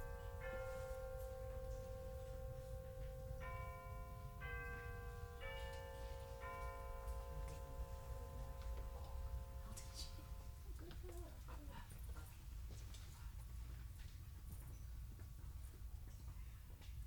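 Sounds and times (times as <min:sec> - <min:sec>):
soft bell-like background music: 0:00.0 - 0:10.9.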